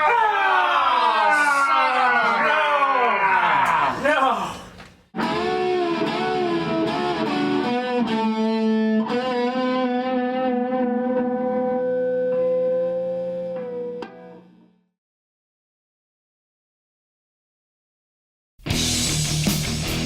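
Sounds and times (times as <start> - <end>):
electric guitar playing: 5.2 - 14.8.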